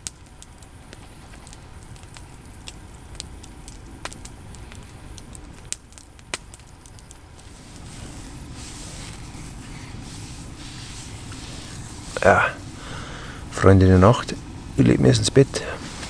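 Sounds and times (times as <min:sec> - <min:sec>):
burning wood popping: 0:00.0 - 0:16.0
campfire crackling: 0:00.0 - 0:16.0
low steady rumble: 0:07.3 - 0:16.0.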